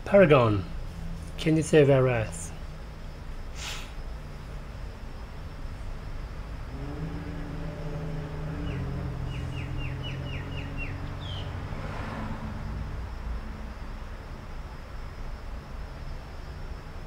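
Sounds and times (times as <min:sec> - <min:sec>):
low engine-like hum: 0:00.0 - 0:17.0
bird chirping: 0:07.7 - 0:11.7.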